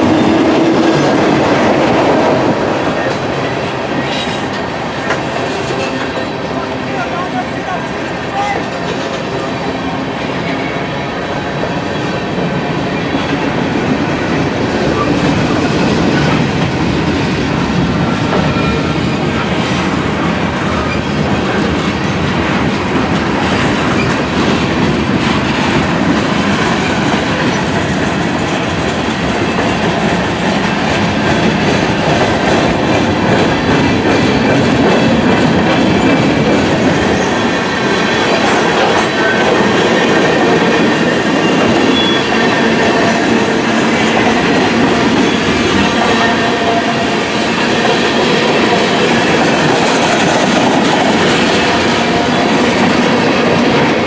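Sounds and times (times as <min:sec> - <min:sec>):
freight train rumble: 0:00.0 - 0:54.0
train wheels clicking over rail joints: 0:11.6 - 0:54.0.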